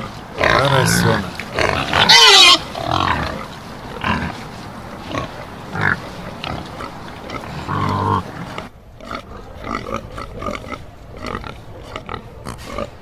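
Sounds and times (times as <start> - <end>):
piglet grunting: 0.0 - 4.4.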